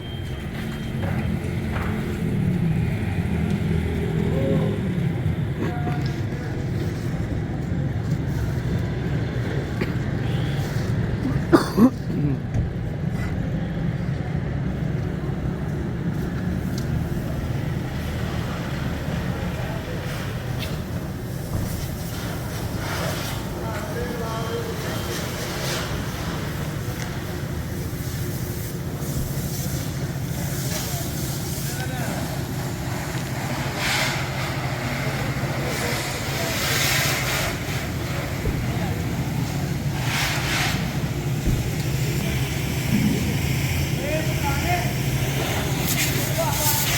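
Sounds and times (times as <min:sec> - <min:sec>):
short vocal sound from person: 0:11.2 - 0:12.5
pressure washer humming: 0:14.7 - 0:46.9
water jet hissing: 0:15.3 - 0:46.9.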